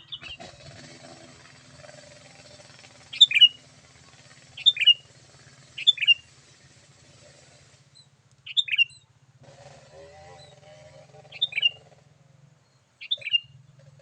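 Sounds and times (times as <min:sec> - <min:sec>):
bulbul calling: 0:00.0 - 0:14.0
faint low hum: 0:00.0 - 0:14.0.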